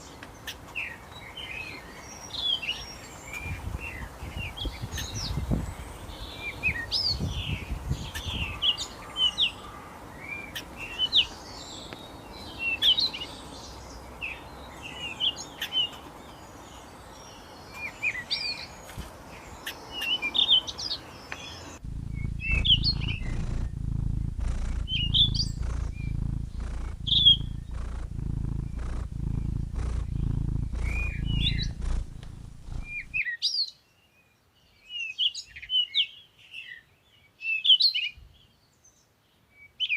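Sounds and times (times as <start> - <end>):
small birds chirping: 0.0 - 37.6
steady low rumble: 21.8 - 33.2.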